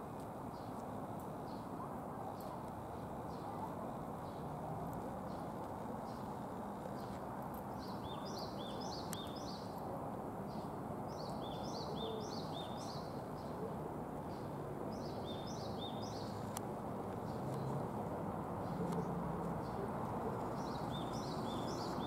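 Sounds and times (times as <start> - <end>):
outdoor background noise: 0.0 - 22.0
small bird chirping: 18.8 - 22.0.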